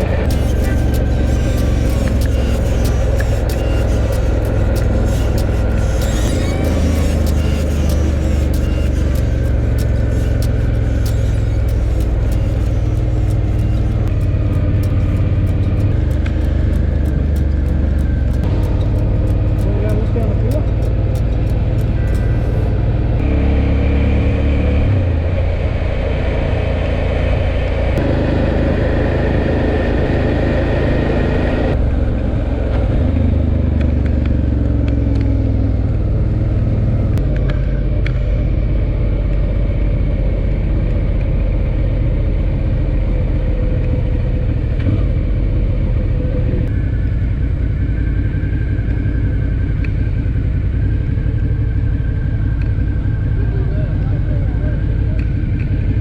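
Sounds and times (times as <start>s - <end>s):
motorcycle engine running: 0.0s - 25.7s
wind noise: 0.0s - 56.0s.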